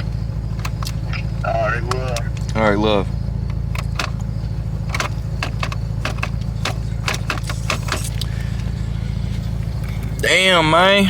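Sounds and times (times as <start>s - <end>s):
car engine droning: 0.0s - 11.0s
light clicks and rattles: 0.5s - 2.6s, 3.4s - 8.7s.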